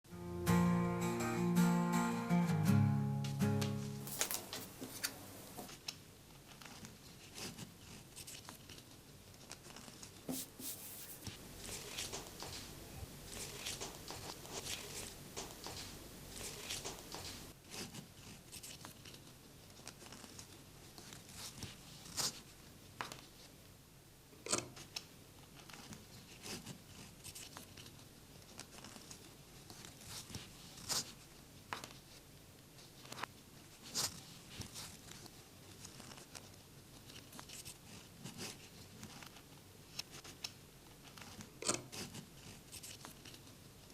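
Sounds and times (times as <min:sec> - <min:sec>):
denim fabric rustling: 0:04.0 - 0:05.4, 0:10.3 - 0:17.6.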